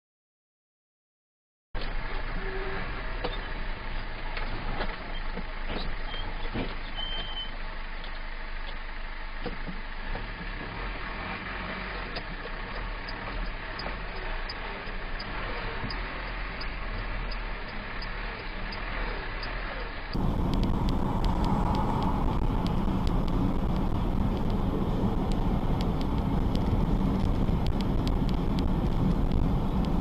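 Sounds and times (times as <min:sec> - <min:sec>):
road and engine noise: 0:01.8 - 0:30.0
faint regular ticking: 0:12.2 - 0:30.0
wind noise: 0:20.1 - 0:30.0.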